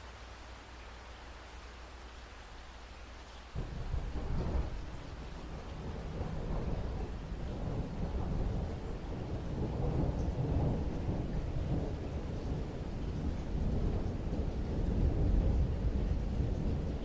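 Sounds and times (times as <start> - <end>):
steady rain: 0.0 - 17.0
thunder rumbling: 3.6 - 17.0.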